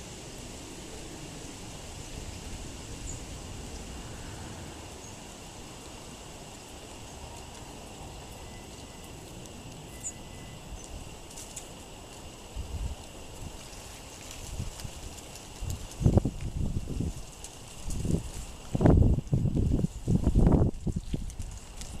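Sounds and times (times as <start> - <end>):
faint songbird chirps: 9.9 - 11.0
gusty wind on microphone: 14.3 - 22.0.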